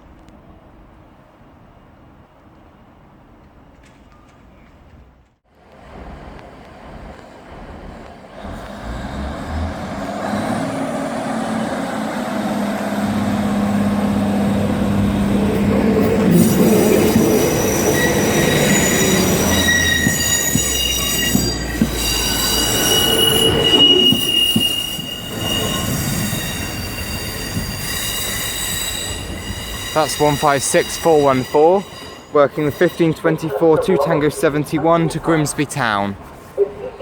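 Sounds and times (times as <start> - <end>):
train wheels rumbling: 3.4 - 37.0
train diesel engine humming: 5.1 - 37.0
high-pitched wheel squeal: 16.3 - 33.8.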